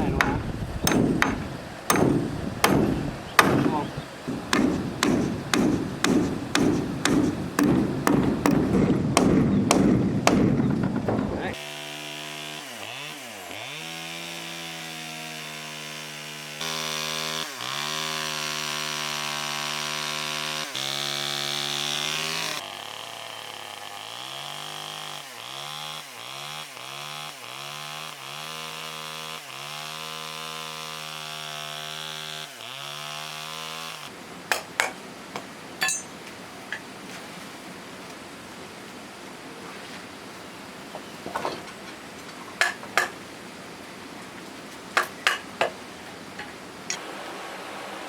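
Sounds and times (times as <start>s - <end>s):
sharp knocks: 0.1s - 11.2s
power tool cutting wood: 11.5s - 34.1s.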